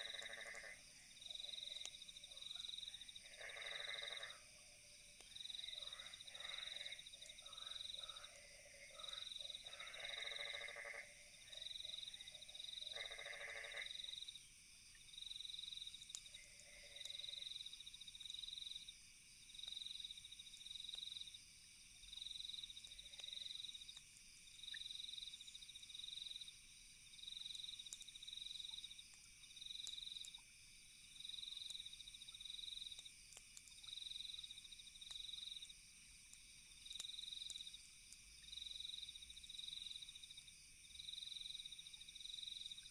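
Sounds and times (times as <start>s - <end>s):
frog croaking: 0.0s - 4.6s, 5.6s - 14.2s, 16.4s - 17.4s
crickets chirping: 0.0s - 42.9s
high insect trill: 0.0s - 42.9s.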